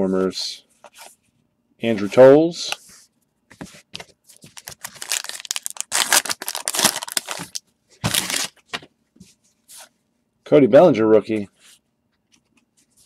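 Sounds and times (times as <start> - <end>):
wrappers and cards crinkling: 4.3 - 8.6.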